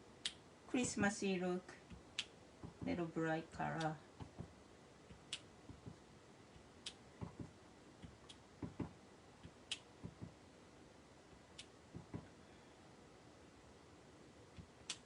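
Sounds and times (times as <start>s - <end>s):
stamp block tapping: 6.6s - 10.4s, 11.9s - 12.3s.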